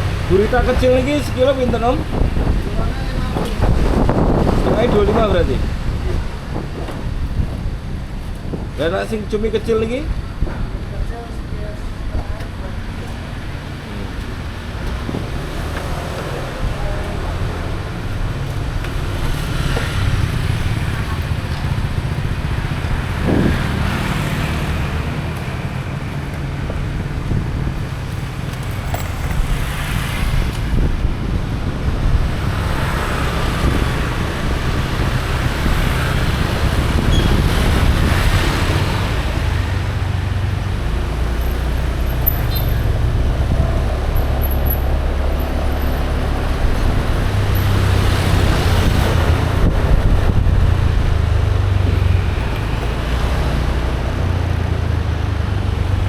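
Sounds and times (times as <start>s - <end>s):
road traffic: 0.0s - 56.0s
low engine hum: 11.6s - 56.0s.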